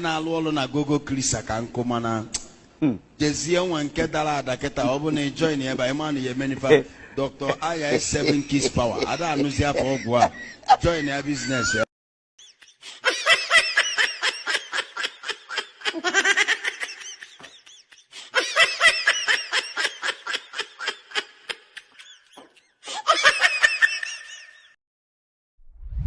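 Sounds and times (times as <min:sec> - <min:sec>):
loud rapid laughter: 0:07.5 - 0:24.8.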